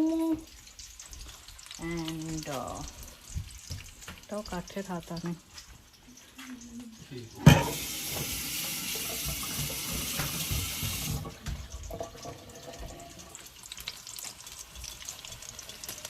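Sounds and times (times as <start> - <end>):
kitchen tap running: 0.0 - 6.1, 7.1 - 16.0
curry frying and sizzling: 0.0 - 16.0.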